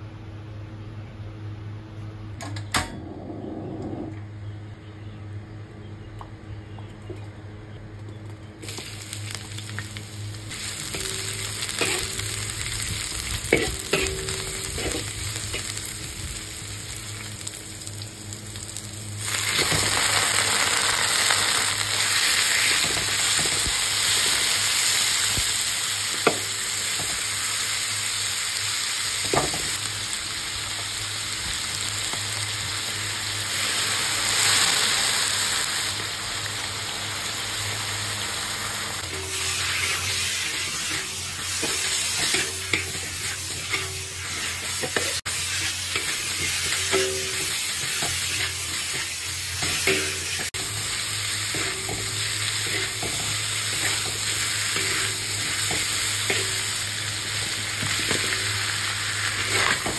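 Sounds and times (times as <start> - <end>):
food sizzling in hot oil: 8.6 - 59.9
spatula scraping a wok: 10.5 - 16.4, 39.0 - 59.9.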